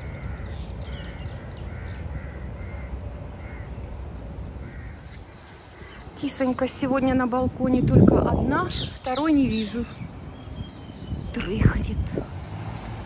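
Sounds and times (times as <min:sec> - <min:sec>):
bird calling: 0:00.0 - 0:04.0
low outdoor rumble: 0:00.0 - 0:13.0.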